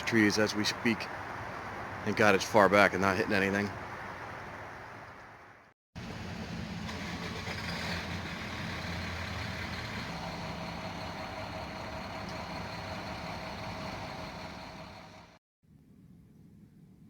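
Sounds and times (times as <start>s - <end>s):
constant whine: 4.9s - 15.4s
vehicle engine running: 6.0s - 15.4s.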